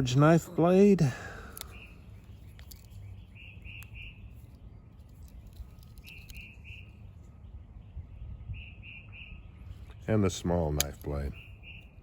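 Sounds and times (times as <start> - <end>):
faint bird calling: 1.1 - 10.0.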